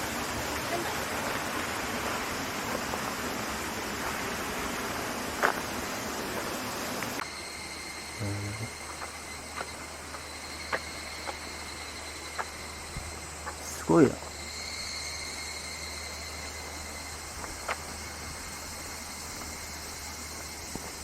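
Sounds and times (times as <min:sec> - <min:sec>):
insect calling high-pitched: 0:00.0 - 0:21.0.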